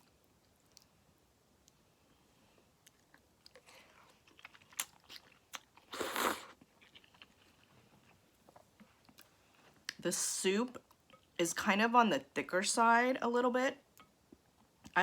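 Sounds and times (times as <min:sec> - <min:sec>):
slurping noodles: 0:05.8 - 0:06.6.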